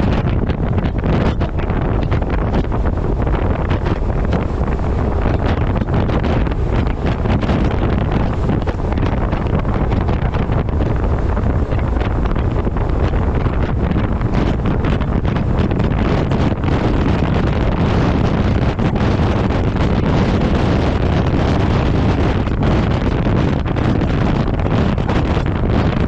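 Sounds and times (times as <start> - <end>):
deep vehicle rumble: 0.0 - 26.0
wind buffeting microphone: 0.0 - 26.0.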